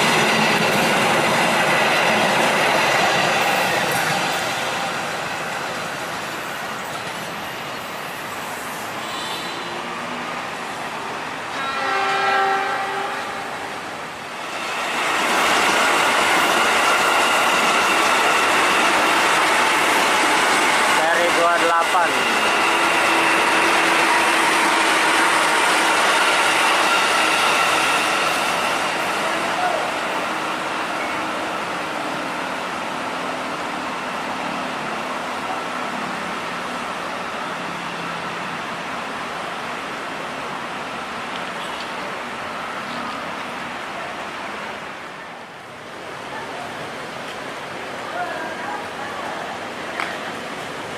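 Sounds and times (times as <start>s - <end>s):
train rumbling past: 0.0s - 50.9s
train horn: 11.5s - 13.7s.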